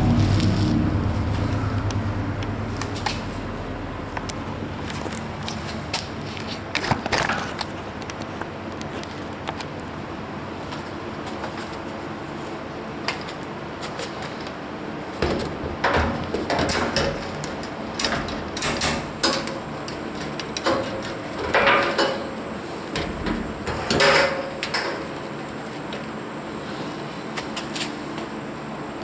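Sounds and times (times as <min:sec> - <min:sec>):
steady low hum: 0:00.0 - 0:27.4
objects knocking and clattering: 0:15.2 - 0:25.2.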